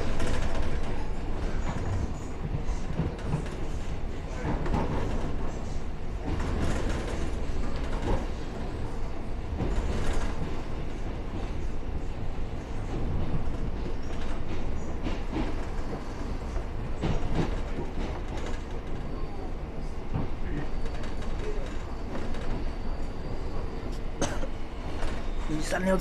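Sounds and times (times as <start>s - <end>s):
clacks over rail joints: 0.0s - 11.7s, 12.8s - 19.2s
train wheels rumbling on rail: 0.0s - 26.0s.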